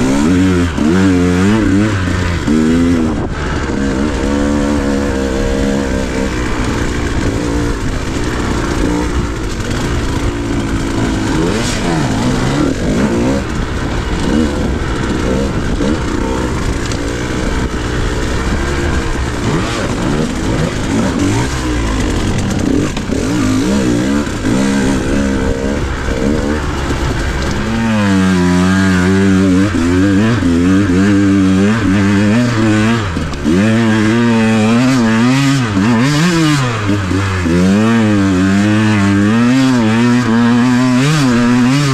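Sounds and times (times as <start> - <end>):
dirt bike engine revving: 0.0 - 41.9
wind noise: 0.0 - 41.9.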